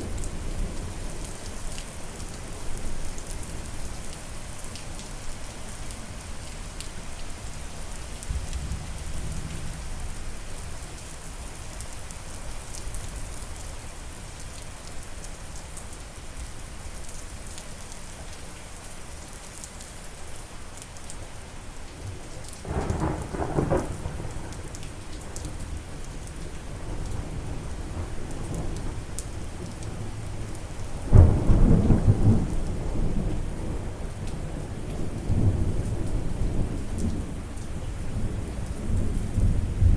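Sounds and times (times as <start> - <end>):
steady rain: 0.0 - 39.9
thunder rumbles: 22.6 - 25.9, 31.0 - 34.0.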